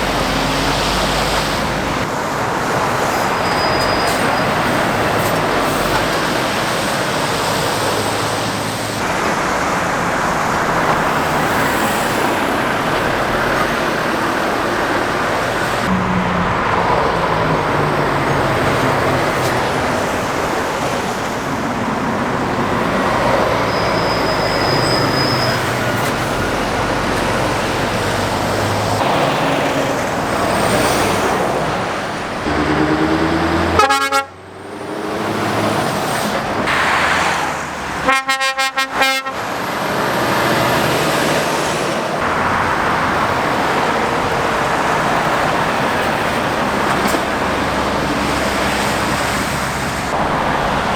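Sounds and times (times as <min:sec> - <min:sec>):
heavy road traffic passing: 0:00.0 - 0:50.9
vehicle horn toots: 0:33.6 - 0:34.4, 0:38.0 - 0:39.5.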